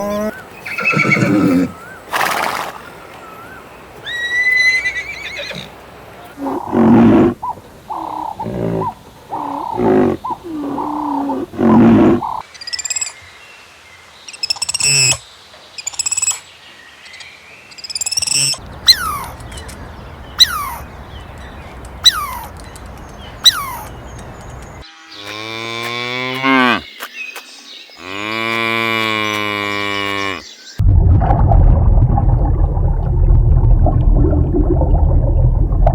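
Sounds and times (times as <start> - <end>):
animal calls: 0.0 - 12.4, 18.2 - 25.4
high bird chirps: 17.1 - 24.8.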